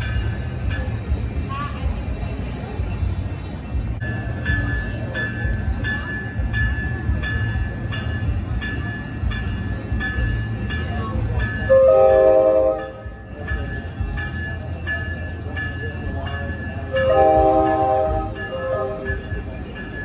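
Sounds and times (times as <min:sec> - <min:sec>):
railroad bell ringing: 0:00.0 - 0:20.0
train rumbling: 0:00.0 - 0:20.0
train horn blast: 0:11.7 - 0:13.0, 0:16.9 - 0:19.2.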